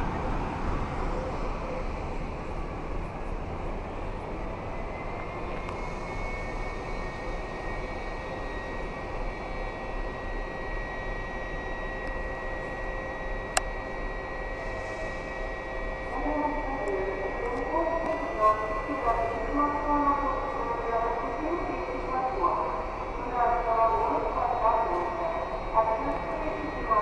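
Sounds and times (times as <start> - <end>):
train squeal: 4.7 - 13.4, 14.2 - 16.1.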